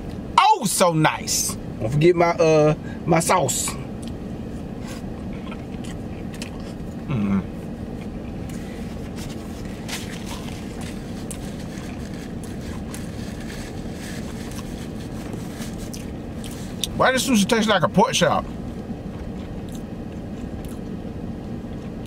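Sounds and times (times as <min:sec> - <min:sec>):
low rumble of parked car: 0:00.0 - 0:22.0
man chewing food: 0:03.9 - 0:17.0, 0:18.4 - 0:22.0
man humming mm: 0:07.1 - 0:07.6.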